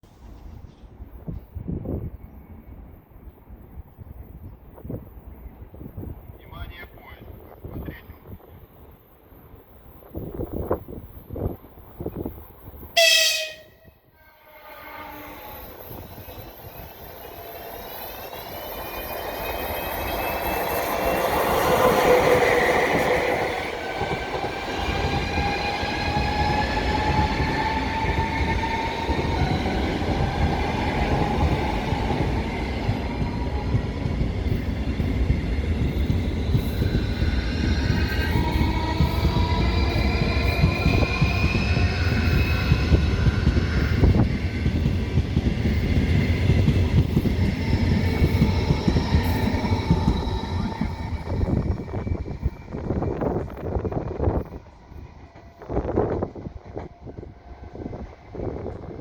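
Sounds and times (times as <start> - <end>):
train passing with heavy rumble: 0.0 - 59.0
train horn blast: 13.0 - 15.7.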